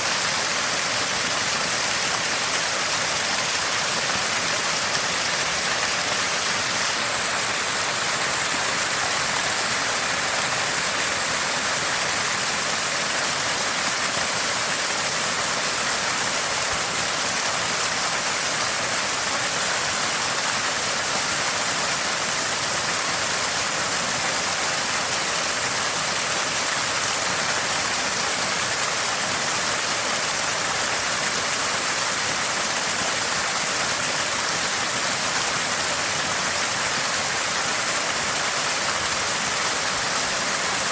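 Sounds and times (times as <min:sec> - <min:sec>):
water gushing and gurgling: 0:00.0 - 0:18.6.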